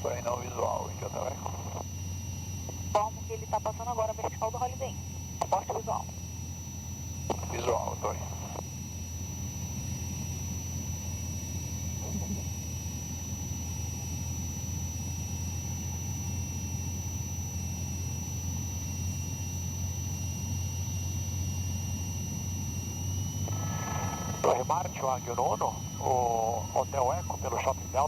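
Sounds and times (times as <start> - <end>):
airplane engine and propeller droning: 0.0 - 28.0
thin high whine: 22.9 - 28.0.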